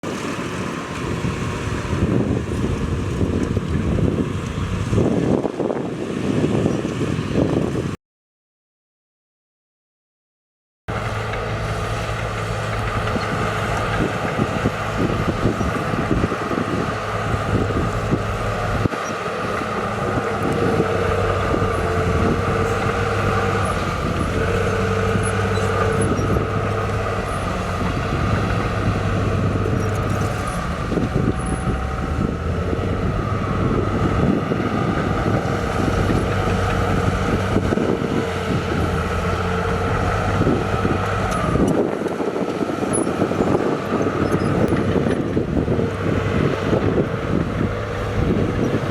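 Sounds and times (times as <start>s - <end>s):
heavy diesel machinery droning: 0.0s - 7.9s, 10.9s - 48.9s
low machinery clatter: 10.9s - 48.9s.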